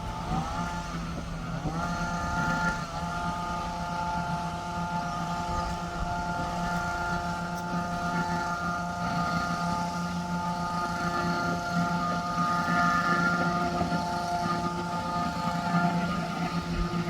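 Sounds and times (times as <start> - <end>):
machine motor whining: 0.0 - 17.0.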